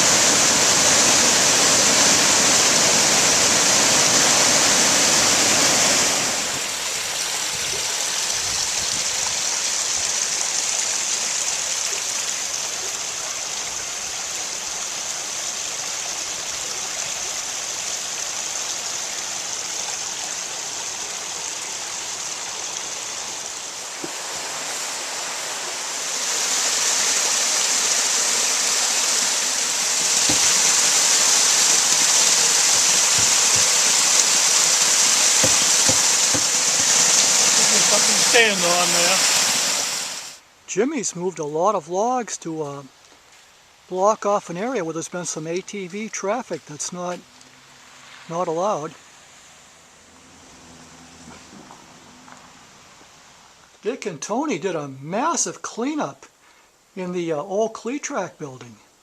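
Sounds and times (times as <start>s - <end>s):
water rushing over dam: 0.0s - 40.4s.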